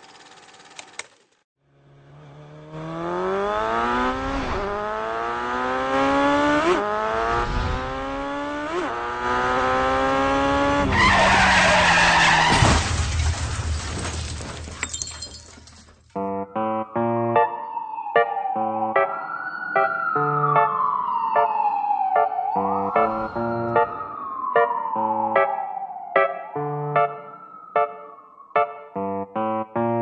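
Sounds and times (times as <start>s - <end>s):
car engine revving: 1.6s - 12.5s
tyre screech: 10.9s - 12.7s.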